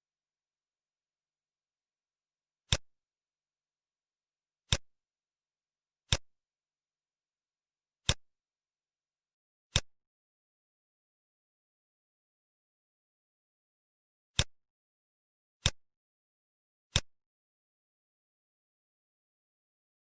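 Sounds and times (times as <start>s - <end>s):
computer mouse clicks: 4.7s - 4.9s.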